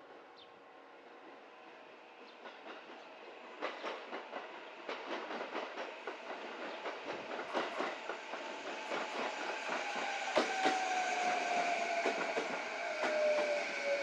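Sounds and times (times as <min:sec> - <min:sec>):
train wheels clattering over rail joints: 0:03.6 - 0:13.9.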